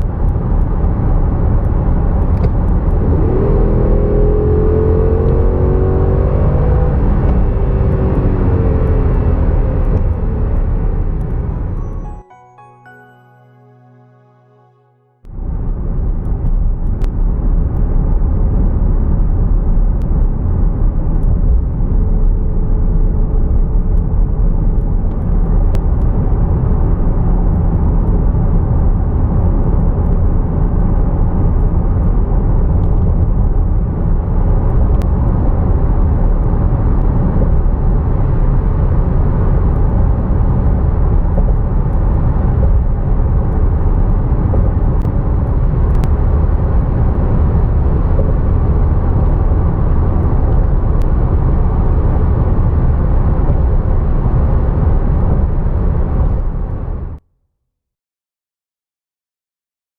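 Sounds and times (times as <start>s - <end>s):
road and tyre noise: 0.0s - 11.8s, 30.0s - 57.2s
car engine cruising: 0.4s - 12.1s.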